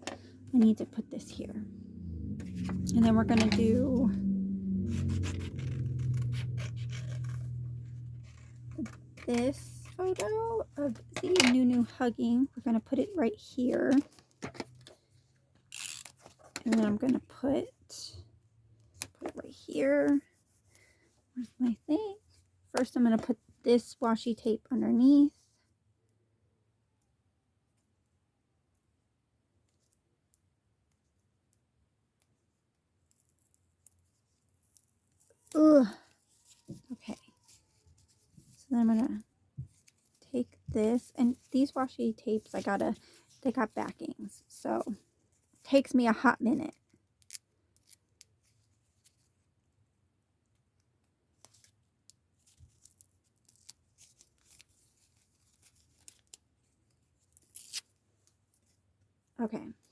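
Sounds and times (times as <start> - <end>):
tape peeling from paper: 4.0 - 10.0, 57.2 - 58.0
tape clicking and crinkling: 4.8 - 12.0, 50.6 - 58.8.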